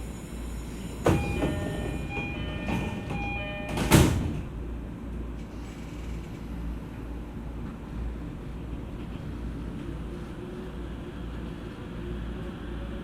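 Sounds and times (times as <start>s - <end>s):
train rumbling inside car: 0.0s - 13.0s
ringing tone: 1.2s - 3.9s.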